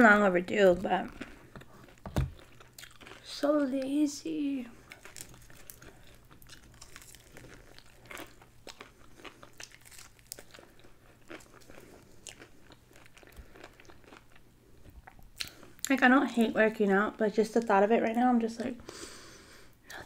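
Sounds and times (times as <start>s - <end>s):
chewing crispy chicken: 0.8s - 4.0s, 4.7s - 16.0s.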